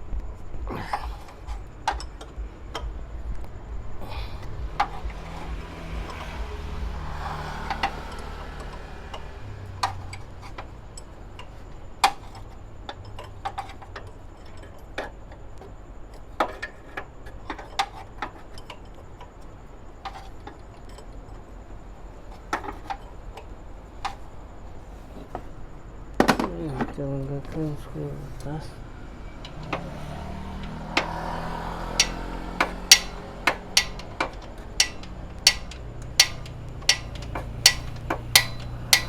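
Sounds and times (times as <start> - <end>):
low steady hum: 0.0 - 39.0
metallic clicks of hand tools: 4.4 - 19.3, 29.3 - 39.0.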